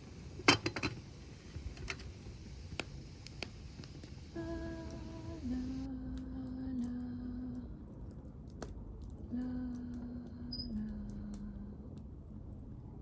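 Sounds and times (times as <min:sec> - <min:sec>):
person humming: 0:04.4 - 0:07.8, 0:09.3 - 0:11.8.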